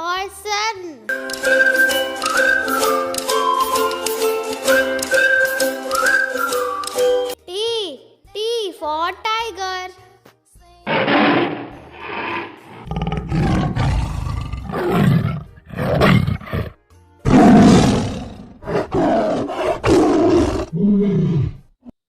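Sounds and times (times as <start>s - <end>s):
tiger roaring and growling: 10.9s - 21.7s.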